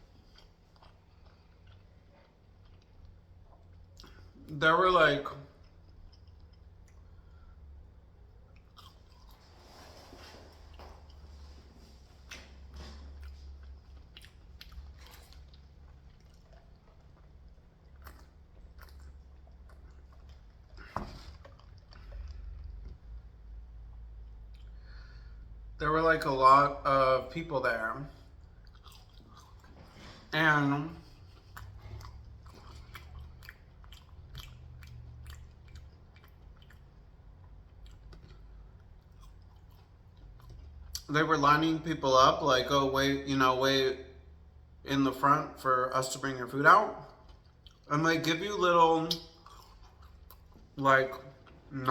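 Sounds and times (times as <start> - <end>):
person chewing food: 0.0 - 4.6, 5.4 - 25.7, 28.1 - 41.1, 47.0 - 51.9
wet mouth clicks and smacks: 12.2 - 23.0, 31.0 - 41.1, 49.0 - 50.7.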